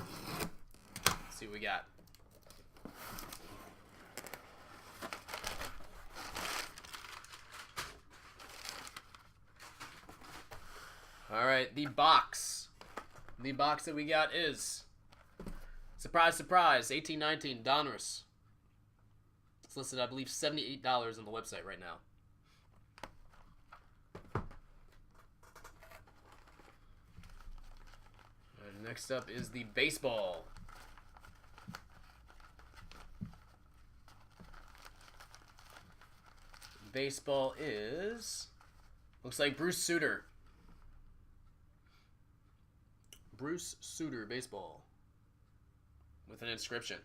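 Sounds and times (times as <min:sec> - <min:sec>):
packaging crinkling and tearing: 0:04.0 - 0:10.1, 0:25.5 - 0:37.2.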